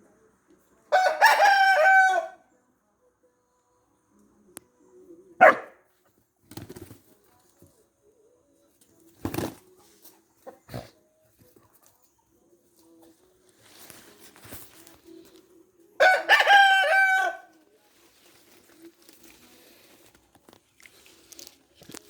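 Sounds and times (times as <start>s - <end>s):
dog barking: 5.4s - 5.8s.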